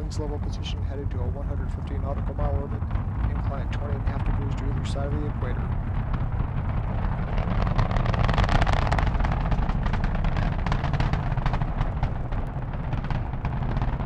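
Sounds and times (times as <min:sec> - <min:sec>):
distant rocket launch roar: 0:00.0 - 0:14.0
sharp crackling: 0:00.0 - 0:14.0.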